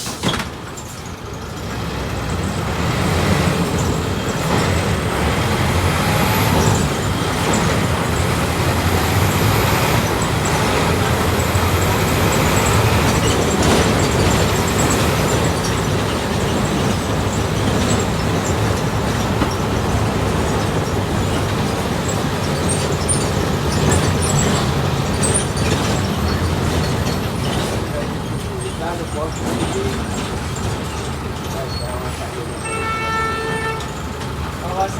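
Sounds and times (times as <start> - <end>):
bus engine running: 0.0 - 34.9
road noise: 0.0 - 34.9.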